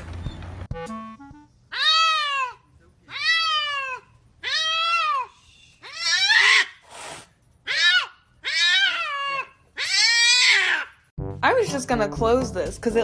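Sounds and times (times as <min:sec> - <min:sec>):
cat meowing loudly: 0:01.7 - 0:06.8, 0:07.7 - 0:11.0.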